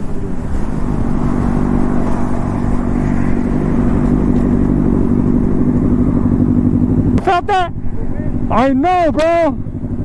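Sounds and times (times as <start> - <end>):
wind rushing over microphone: 0.0 - 7.2
motorcycle engine cruising: 0.0 - 10.0.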